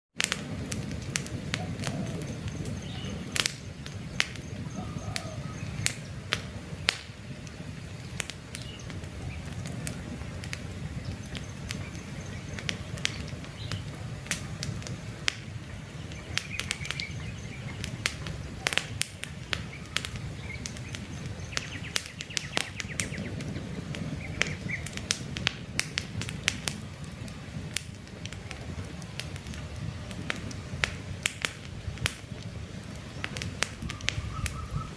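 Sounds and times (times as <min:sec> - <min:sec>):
campfire crackling and popping: 0:00.2 - 0:34.9
birds chirping: 0:01.4 - 0:25.2, 0:32.2 - 0:34.9.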